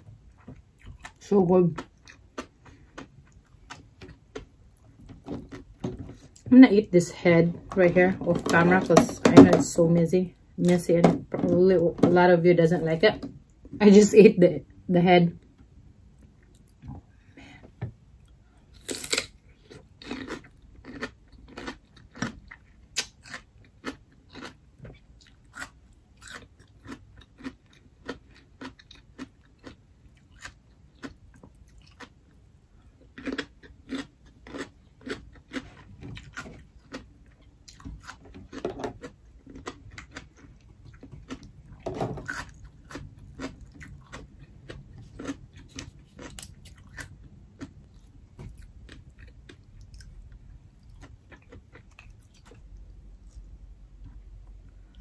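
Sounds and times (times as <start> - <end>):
crunching raw radish: 18.7 - 24.6.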